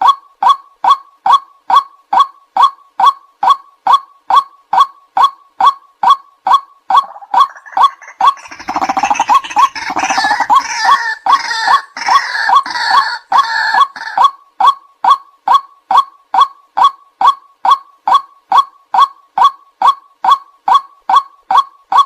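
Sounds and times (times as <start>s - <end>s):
waterhen kwak calls: 6.5s - 15.2s
harsh chattering bird calls: 6.9s - 14.3s.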